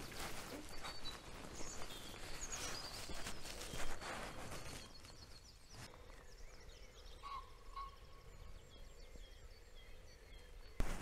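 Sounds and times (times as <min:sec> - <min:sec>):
footsteps brushing through grass: 0:00.0 - 0:05.9
small birds chirping and whistling: 0:00.0 - 0:11.0.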